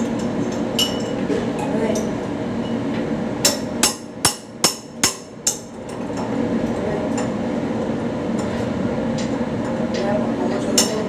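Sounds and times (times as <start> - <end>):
workshop hum: 0.0 - 11.0
hammer striking metal: 3.4 - 5.7.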